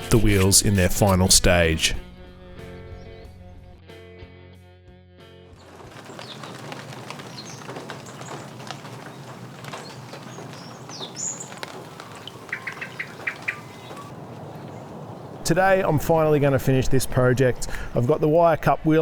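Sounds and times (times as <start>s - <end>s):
short repeated bird calls: 5.6s - 15.4s
birds chirping and calling: 5.6s - 18.1s
outdoor background hiss: 5.7s - 18.6s.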